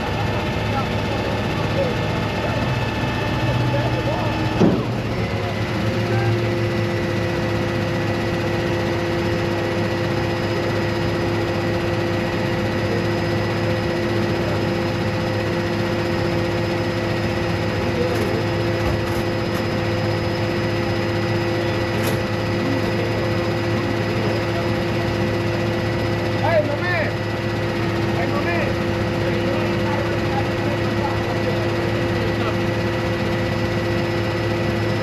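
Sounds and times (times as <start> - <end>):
vehicle engine droning: 11.6 - 33.6.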